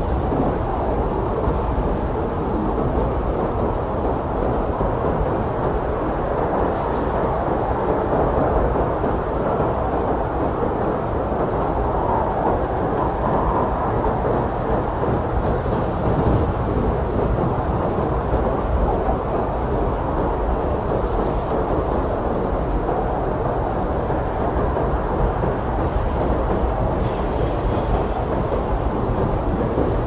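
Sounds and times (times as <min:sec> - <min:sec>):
blizzard wind roaring: 0:00.0 - 0:30.0.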